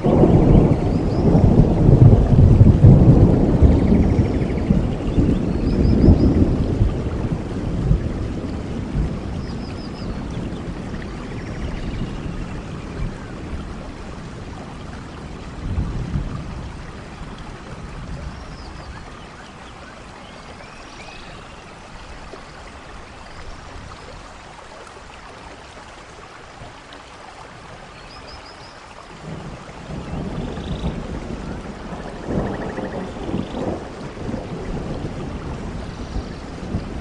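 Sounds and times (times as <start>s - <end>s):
thunder rumble: 0.0s - 19.1s, 29.2s - 37.0s
steady rain: 0.0s - 37.0s.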